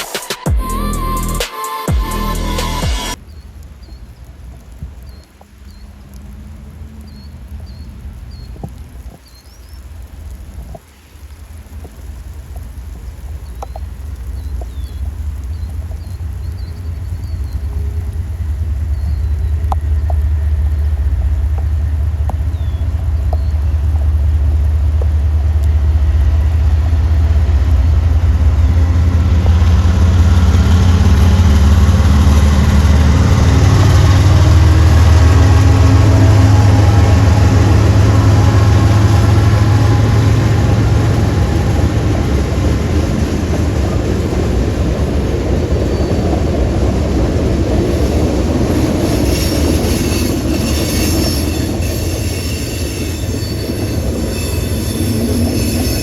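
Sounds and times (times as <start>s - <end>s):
rolling train cars: 0.0s - 56.0s
diesel locomotive engine drone: 0.5s - 9.0s, 11.6s - 56.0s
high-pitched wheel squeal: 48.8s - 56.0s.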